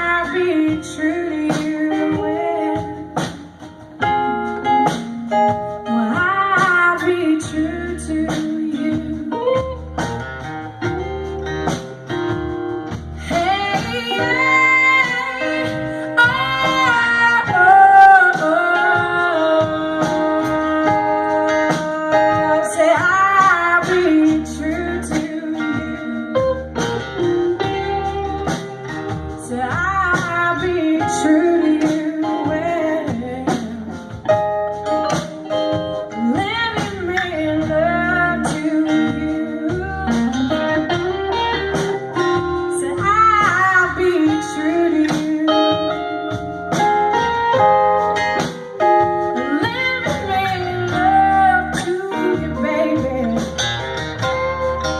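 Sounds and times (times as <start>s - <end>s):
blues band with guitar: 0.0s - 54.9s
person singing: 13.2s - 26.7s, 41.9s - 46.6s, 49.4s - 53.8s.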